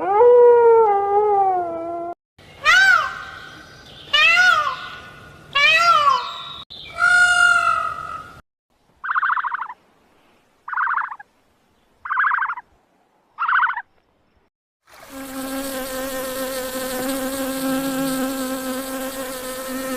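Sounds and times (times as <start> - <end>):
insect buzzing: 14.9 - 19.9.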